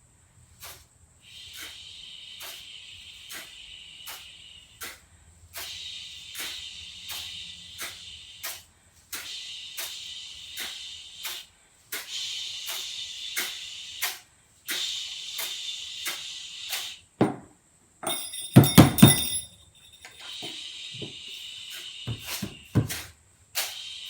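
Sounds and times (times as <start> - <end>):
high ringing bell: 18.0 - 20.5.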